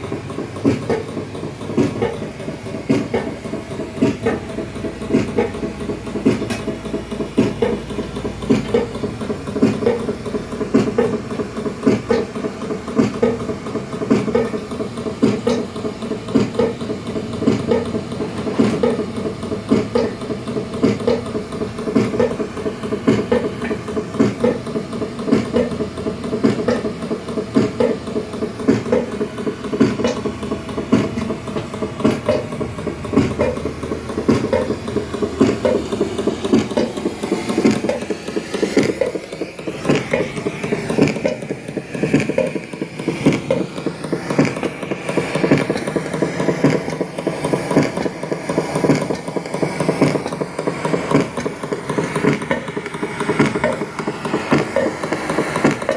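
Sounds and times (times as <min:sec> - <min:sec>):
machine hum: 0:00.0 - 0:55.9
rapid knocking and clattering: 0:00.0 - 0:55.9.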